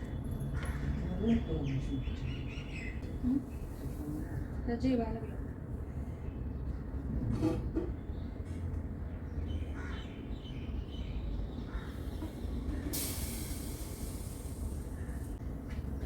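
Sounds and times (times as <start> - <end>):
hiss: 12.8 - 15.4.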